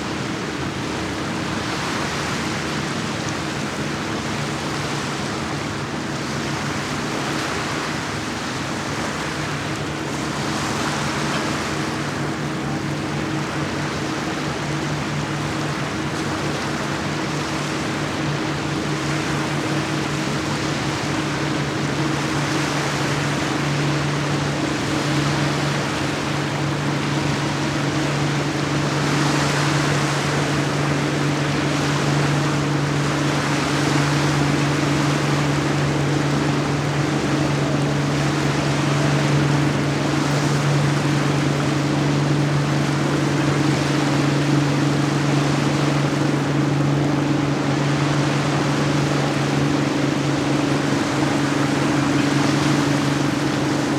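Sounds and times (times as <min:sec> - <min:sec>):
boat engine humming: 0:00.0 - 0:53.9
rushing water and wind: 0:00.0 - 0:53.9.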